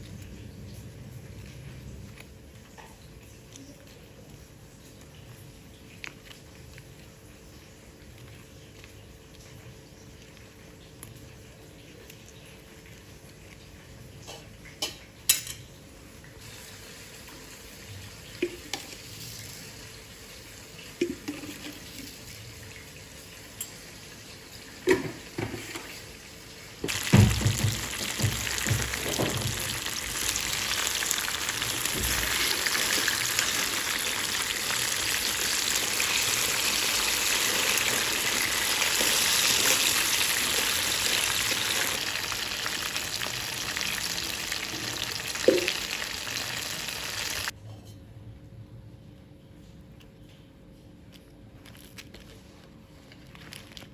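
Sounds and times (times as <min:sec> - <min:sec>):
food sizzling in hot oil: 0:14.8 - 0:47.5
kitchen knocks and clicks: 0:26.8 - 0:29.8.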